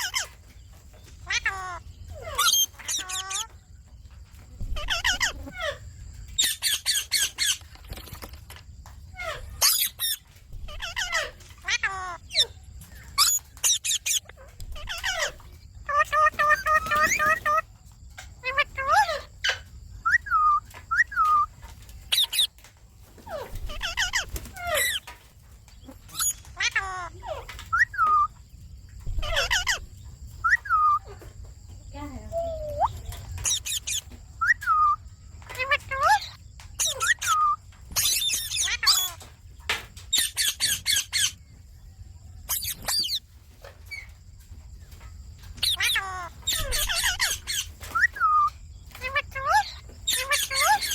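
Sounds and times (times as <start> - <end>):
parakeet chattering: 0.0 - 0.3, 1.2 - 3.5, 4.7 - 5.7, 9.2 - 17.6, 18.4 - 19.2, 22.1 - 22.5, 23.3 - 25.0, 25.9 - 28.3, 29.1 - 29.8, 32.6 - 39.2, 40.1 - 41.4, 42.5 - 43.2, 45.6 - 50.9
parakeet squawks: 0.0 - 0.3, 1.2 - 3.5, 4.7 - 5.8, 9.2 - 17.6, 18.4 - 21.5, 22.1 - 22.5, 23.3 - 25.1, 25.9 - 28.3, 29.1 - 29.8, 32.7 - 39.3, 40.1 - 41.4, 42.5 - 43.2, 45.6 - 50.9
parakeet whistled calls: 13.2 - 15.3, 20.0 - 21.5, 27.7 - 28.3, 29.2 - 29.8, 30.4 - 31.1, 32.4 - 35.0, 35.6 - 39.2, 42.5 - 43.2, 45.6 - 50.9.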